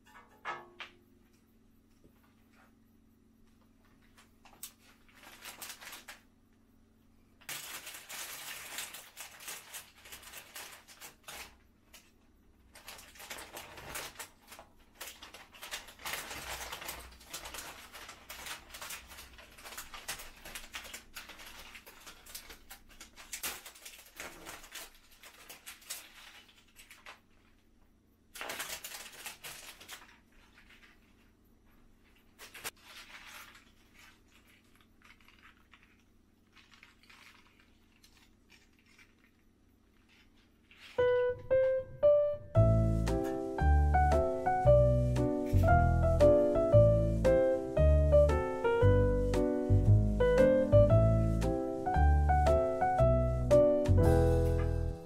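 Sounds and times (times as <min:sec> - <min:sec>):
paper wrapping crinkling: 0:03.9 - 0:06.3, 0:07.4 - 0:55.0.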